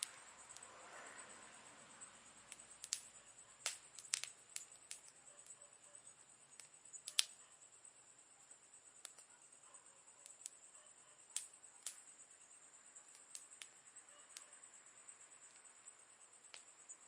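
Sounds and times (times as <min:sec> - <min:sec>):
campfire crackling and popping: 0:00.0 - 0:00.7, 0:02.5 - 0:05.2, 0:06.5 - 0:07.4, 0:09.0 - 0:09.3, 0:11.3 - 0:12.1, 0:13.1 - 0:14.4, 0:16.4 - 0:16.7
faint high-pitched hiss: 0:00.0 - 0:17.0.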